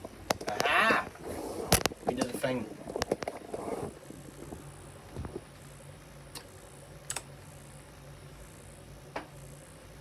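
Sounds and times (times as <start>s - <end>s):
desktop computer hum: 0.0s - 10.0s
short light clicks: 7.1s - 7.3s.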